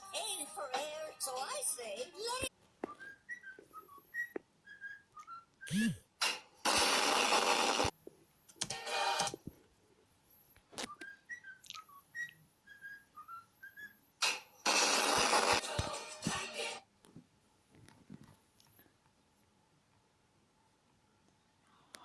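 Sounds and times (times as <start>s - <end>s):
bird singing whistled tune: 2.9s - 5.8s, 10.9s - 14.0s
hissing noisy bursts: 14.7s - 15.6s.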